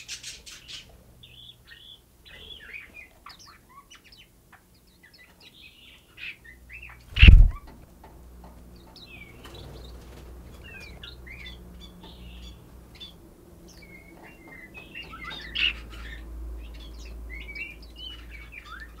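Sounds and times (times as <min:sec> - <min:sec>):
songbirds chirping: 0:00.0 - 0:19.0
low steady hum: 0:06.8 - 0:19.0
sharp rustle: 0:07.1 - 0:07.7.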